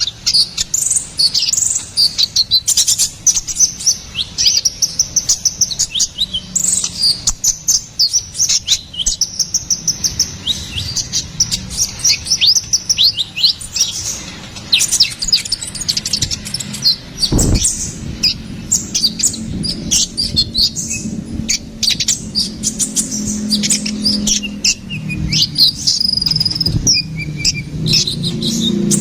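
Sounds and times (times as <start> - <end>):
sunbird singing high chirps: 0.0 - 29.0
low thump: 17.3 - 18.0.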